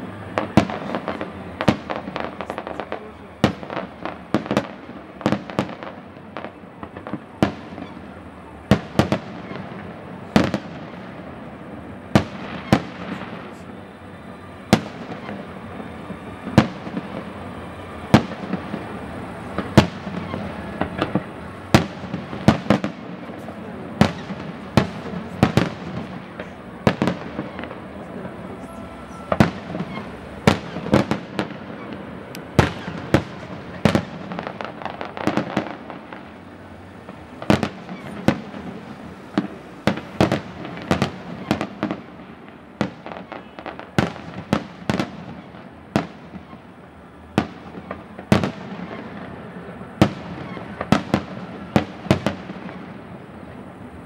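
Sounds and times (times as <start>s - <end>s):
firework shells bursting: 14.7s - 46.6s.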